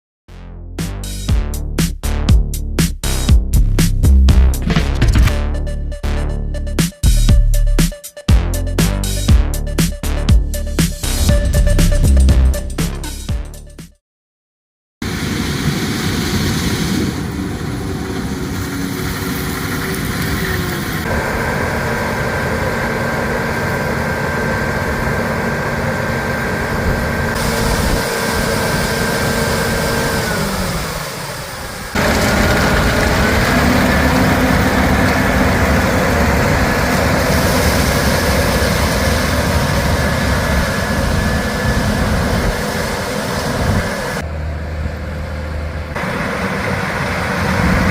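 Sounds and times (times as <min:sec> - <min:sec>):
machine whine sliding in pitch: 0:15.0 - 0:47.9
harvest machinery engines running: 0:15.1 - 0:47.9.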